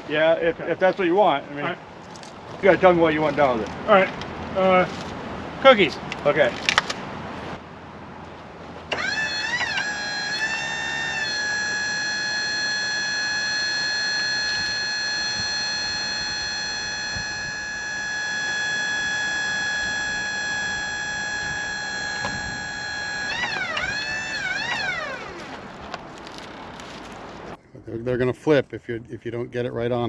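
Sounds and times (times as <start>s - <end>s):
hydraulic pump whining: 8.9s - 26.1s.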